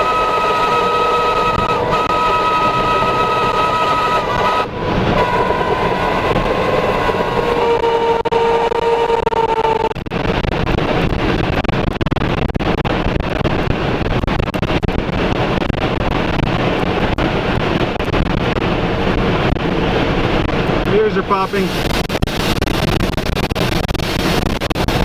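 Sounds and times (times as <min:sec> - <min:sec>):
steady whistling tones: 0:00.0 - 0:10.0
roar of tornado winds: 0:00.0 - 0:25.0.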